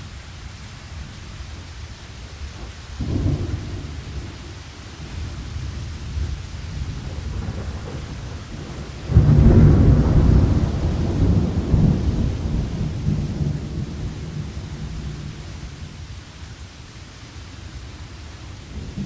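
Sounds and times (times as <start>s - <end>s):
steady rain: 0.0s - 19.0s
thunder rumbling: 2.6s - 16.0s.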